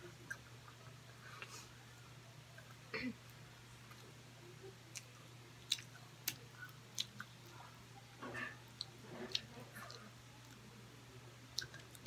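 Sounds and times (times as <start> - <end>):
person chewing food: 4.9 - 7.8, 11.5 - 12.0.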